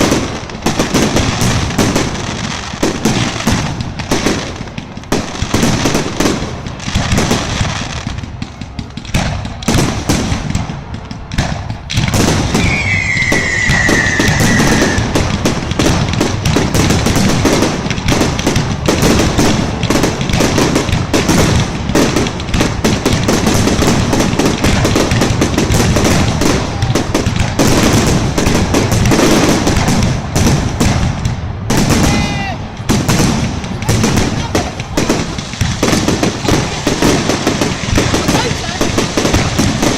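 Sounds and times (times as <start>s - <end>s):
fireworks bangs and crackles: 0.0s - 39.9s
whistling firework falling in pitch: 11.2s - 15.4s.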